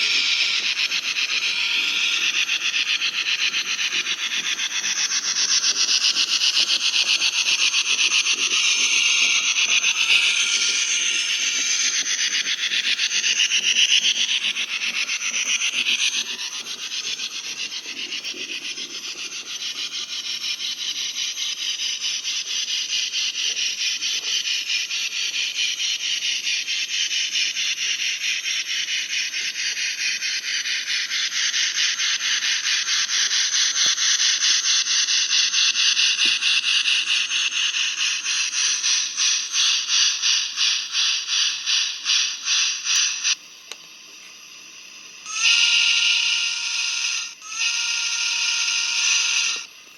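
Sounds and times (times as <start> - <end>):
model steam train chuffing: 0.0 - 49.9.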